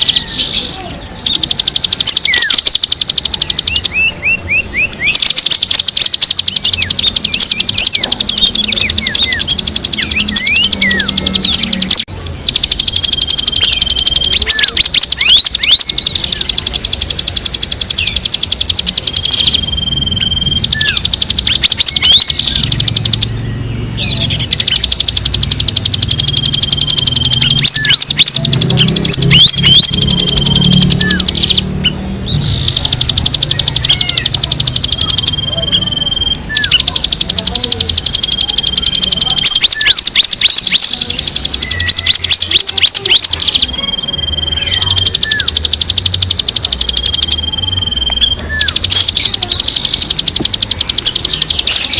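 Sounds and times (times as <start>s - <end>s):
bird whistled notes: 0.0s - 51.9s
fast high-pitched bird trill: 0.0s - 51.9s.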